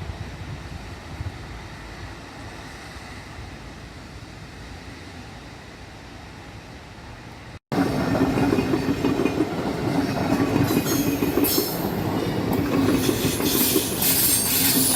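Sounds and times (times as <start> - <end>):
train wheels clattering on rails: 7.7 - 14.9
high-pitched wheel squeal: 12.9 - 14.9.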